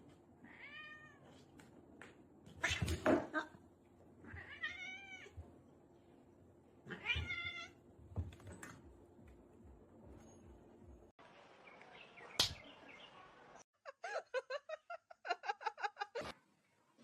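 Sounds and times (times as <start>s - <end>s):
cat meowing: 4.2s - 5.4s, 6.9s - 7.8s.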